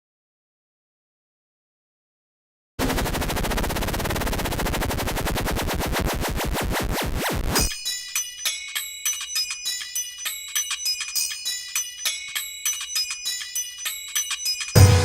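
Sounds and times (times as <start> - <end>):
bell-like chiming notes: 7.6 - 15.0
fuller instrumental music: 8.4 - 15.0.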